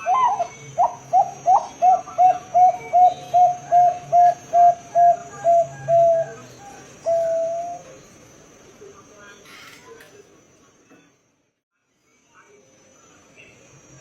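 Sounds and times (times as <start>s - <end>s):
dove cooing: 0.0s - 8.0s.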